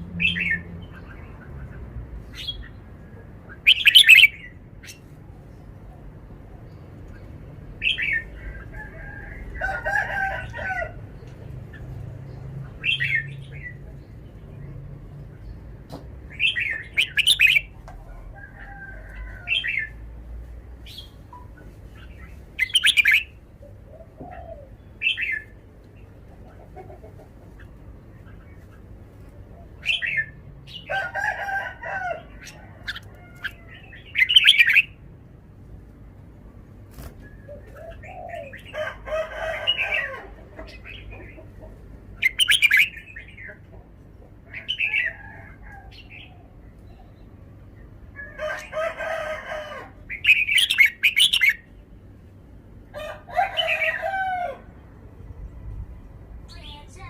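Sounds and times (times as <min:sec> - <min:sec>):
lower jumbled bird calls: 0:00.0 - 0:05.1, 0:50.1 - 0:51.8
bird singing bright phrases: 0:03.5 - 0:05.1, 0:12.4 - 0:17.8, 0:20.8 - 0:23.4, 0:50.1 - 0:51.7, 0:56.4 - 0:57.0.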